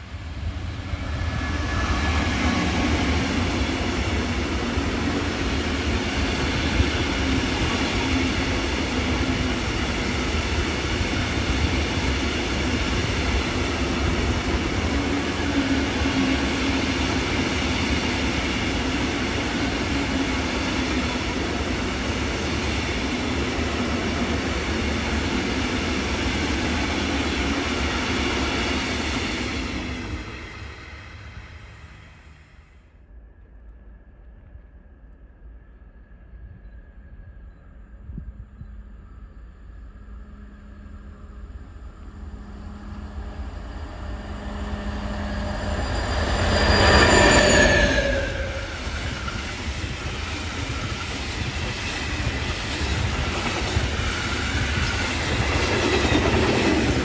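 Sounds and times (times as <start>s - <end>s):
locomotive passing: 39.9s - 57.0s.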